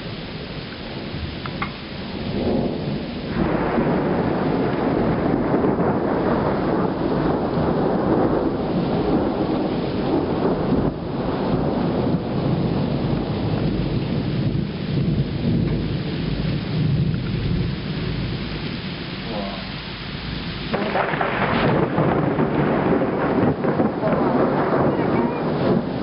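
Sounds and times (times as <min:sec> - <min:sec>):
rain falling: 0:00.0 - 0:26.0
rolling thunder: 0:00.0 - 0:26.0.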